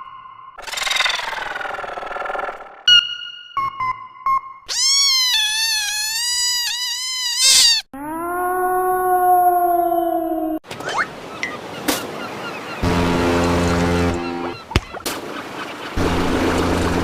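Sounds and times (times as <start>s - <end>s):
cat meowing: 4.7s - 10.1s.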